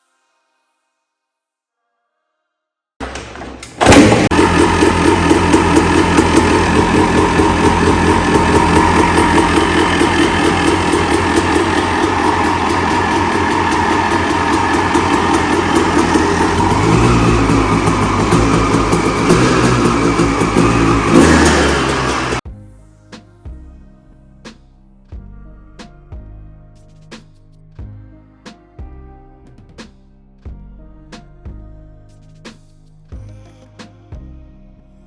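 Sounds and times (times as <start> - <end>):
two-stroke engine running: 3.8 - 22.4.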